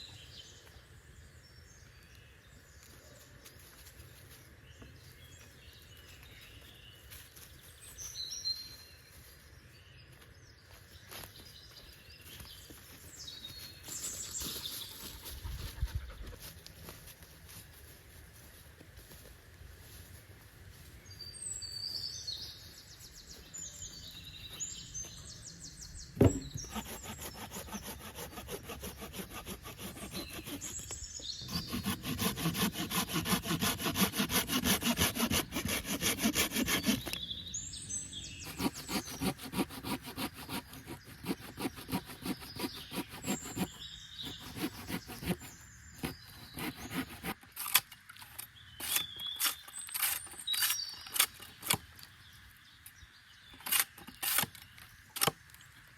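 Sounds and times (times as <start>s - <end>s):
birds chirping: 21.0s - 47.3s
sharp knock: 26.2s - 26.7s
hand saw cutting wood: 26.2s - 37.2s, 38.4s - 51.8s.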